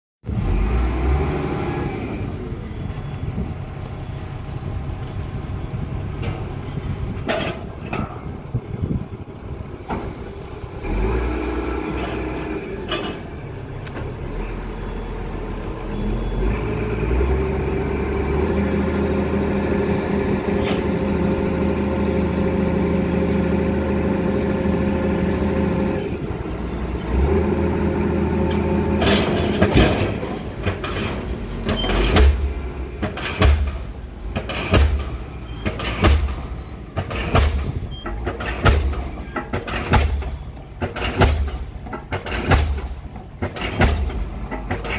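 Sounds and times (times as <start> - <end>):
diesel engine running and revving: 0.2 - 44.9
pile hammer striking: 32.1 - 36.5.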